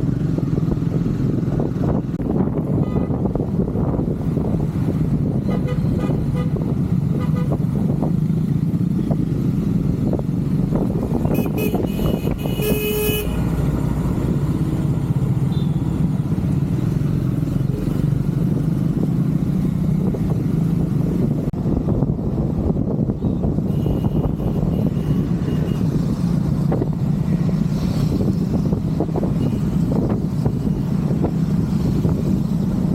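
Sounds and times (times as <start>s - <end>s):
vehicle horn toots: 11.2s - 13.4s, 23.6s - 25.9s.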